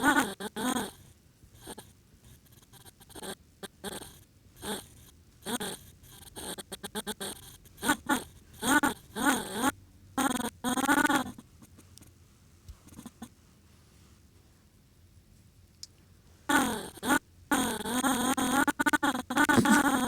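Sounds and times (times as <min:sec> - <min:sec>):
person making animal-like noises: 0:19.5 - 0:20.0.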